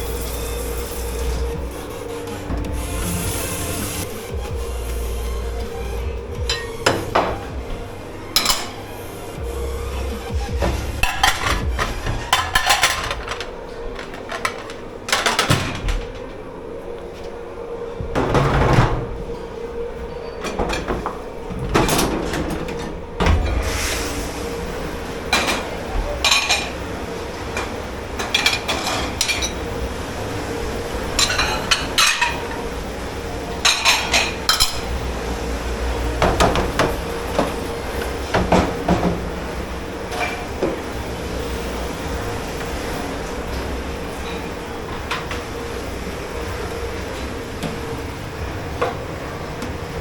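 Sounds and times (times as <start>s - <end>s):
steady machine hum: 0.0s - 50.0s
dishes and cutlery clattering: 6.4s - 7.5s, 8.4s - 8.8s, 10.5s - 16.4s, 20.1s - 23.8s, 25.3s - 26.9s, 27.5s - 29.8s, 31.0s - 32.7s, 33.5s - 35.1s, 35.9s - 41.6s.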